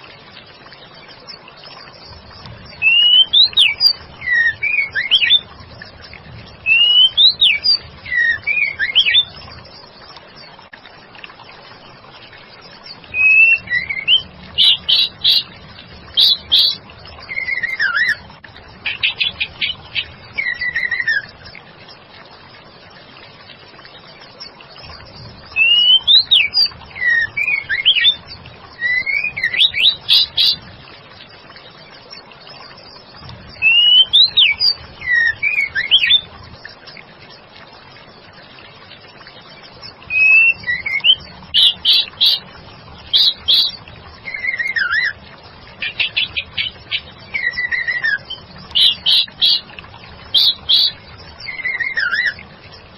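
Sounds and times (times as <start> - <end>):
bird singing whistled notes: 2.0 - 5.5, 6.6 - 9.7, 13.1 - 15.5, 16.1 - 18.2, 18.9 - 21.4, 25.4 - 30.7, 33.6 - 36.3, 40.1 - 45.2, 45.8 - 49.7, 50.3 - 52.4.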